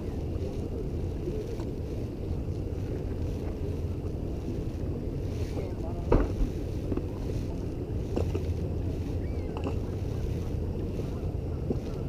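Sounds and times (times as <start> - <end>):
wind buffeting microphone: 0.0 - 12.0
knocks on boat: 6.1 - 6.5.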